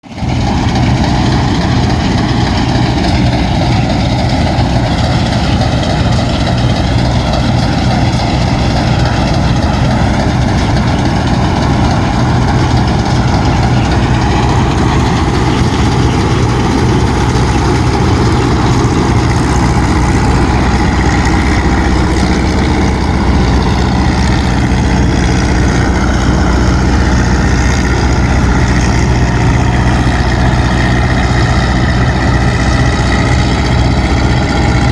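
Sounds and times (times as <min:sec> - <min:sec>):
engine idling: 0:00.0 - 0:34.9.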